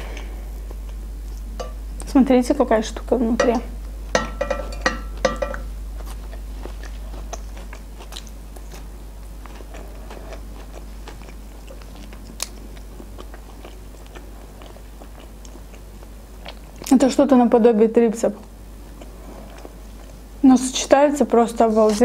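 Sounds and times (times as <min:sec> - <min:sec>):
faint low hum: 0:00.0 - 0:22.0
crunchy chewing of fried chicken: 0:05.8 - 0:17.0, 0:18.4 - 0:20.4.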